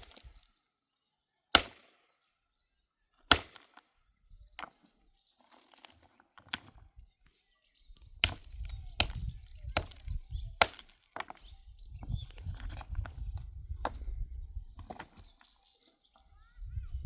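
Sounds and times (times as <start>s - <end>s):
wood being chopped: 0.0s - 0.5s, 1.5s - 2.1s, 3.3s - 3.9s, 8.2s - 11.4s.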